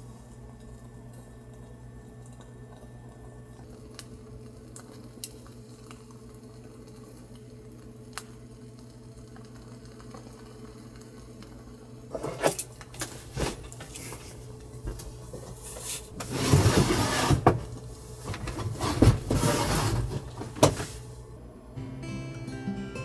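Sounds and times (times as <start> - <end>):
knocks and scraping handling noises: 12.1 - 21.2.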